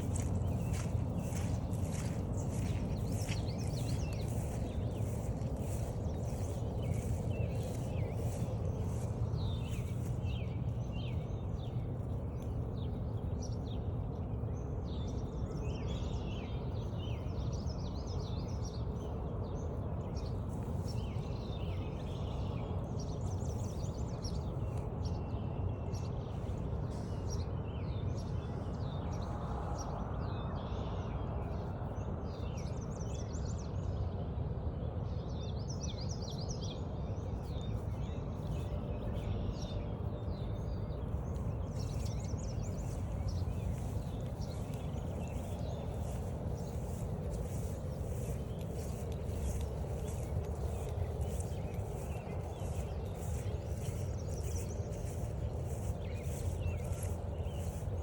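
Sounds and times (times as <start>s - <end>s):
low background rumble: 0.0s - 58.0s
songbirds singing and chirping: 0.0s - 58.0s
soft regular ticks: 41.3s - 58.0s.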